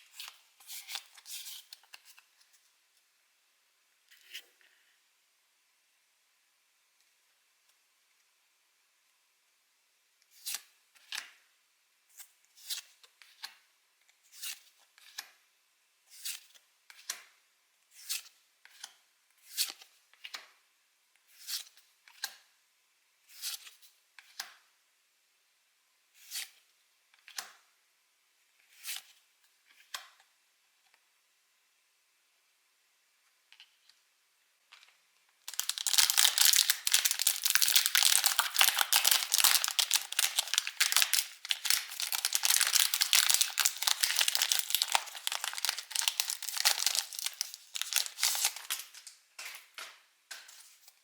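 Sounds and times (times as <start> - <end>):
trading cards being flipped: 35.5 - 50.8.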